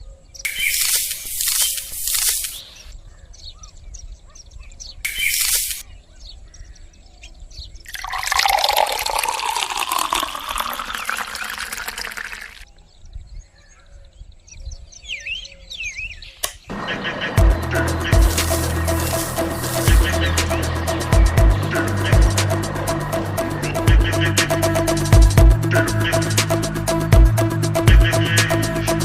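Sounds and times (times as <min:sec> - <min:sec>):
small birds chirping: 0:00.0 - 0:08.4, 0:10.1 - 0:29.0
short hissing bursts: 0:00.5 - 0:02.9, 0:05.1 - 0:05.8, 0:18.3 - 0:20.6
liquid pouring: 0:07.9 - 0:12.6.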